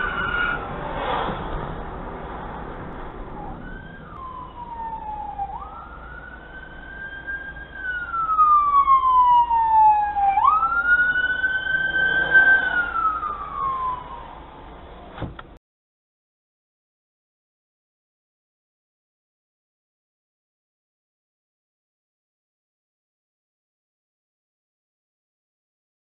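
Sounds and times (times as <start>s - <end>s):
low road hum: 0.0s - 15.6s
emergency siren wailing: 3.2s - 14.8s.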